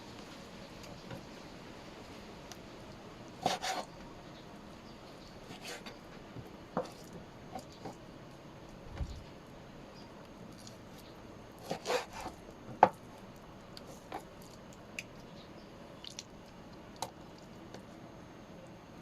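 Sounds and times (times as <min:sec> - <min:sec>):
food squishing: 0:10.3 - 0:17.9.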